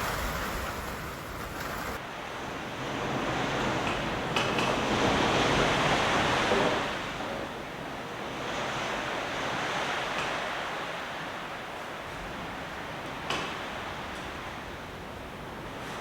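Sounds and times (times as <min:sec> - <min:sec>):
gale-force wind gusting: 0:00.0 - 0:02.0.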